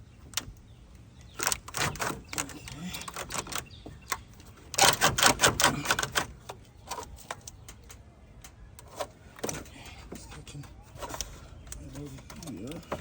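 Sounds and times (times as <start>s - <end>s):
tools and metal parts clanking: 1.3s - 13.0s.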